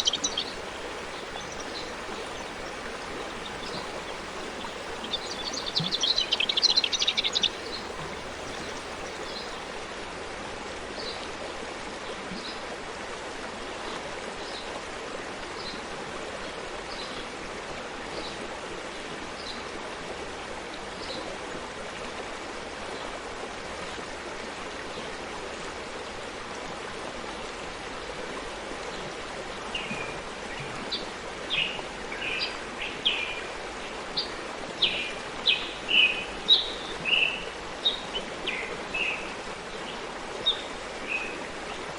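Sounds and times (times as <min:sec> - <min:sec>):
bird chirping: 0:00.0 - 0:09.7
forest stream flowing: 0:00.0 - 0:41.9.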